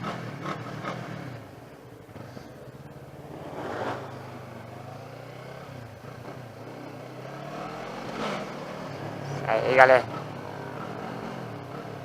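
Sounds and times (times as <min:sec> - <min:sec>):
vehicle passing: 0:01.5 - 0:09.4.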